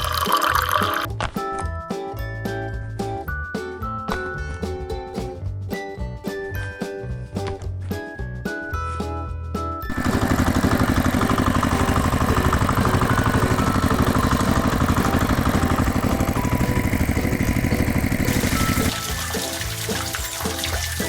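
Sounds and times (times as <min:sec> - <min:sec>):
background music: 0:00.0 - 0:21.0
tractor engine chugging: 0:09.9 - 0:21.0.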